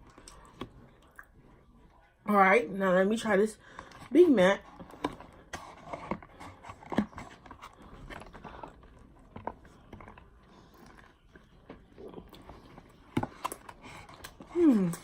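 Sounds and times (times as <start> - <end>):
person biting and chewing food: 6.6 - 15.0.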